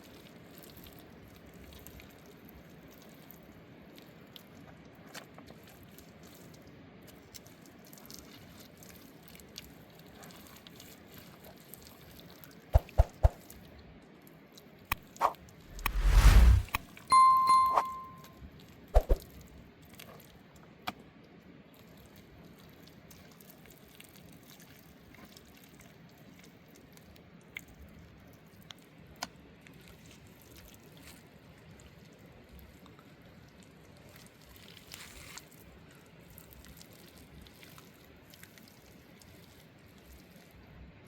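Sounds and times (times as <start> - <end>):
wash of noise: 15.2 - 18.0.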